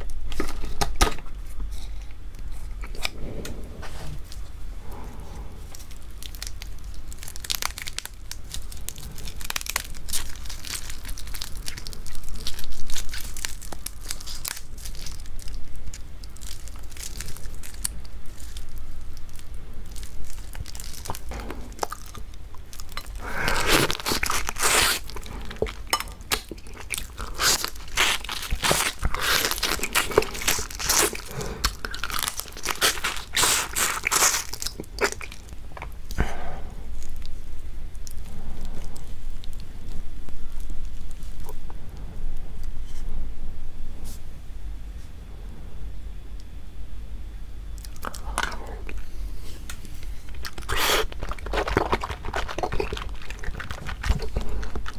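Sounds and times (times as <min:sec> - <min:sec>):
chewing: 0:04.2 - 0:43.1, 0:47.8 - 0:54.9
crunching crab shell: 0:05.7 - 0:41.6, 0:47.8 - 0:54.9.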